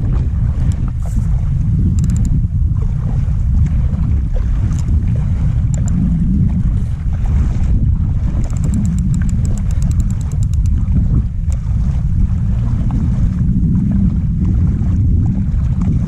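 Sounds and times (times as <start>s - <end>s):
wind buffeting microphone: 0.0s - 16.0s
light clicks: 1.9s - 2.4s, 5.7s - 6.0s, 8.4s - 10.8s.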